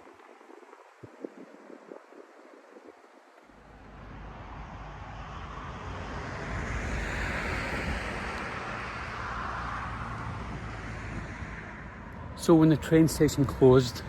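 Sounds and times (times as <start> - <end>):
wind rumble on microphone: 0.0 - 14.0
vehicle passing: 3.6 - 14.0.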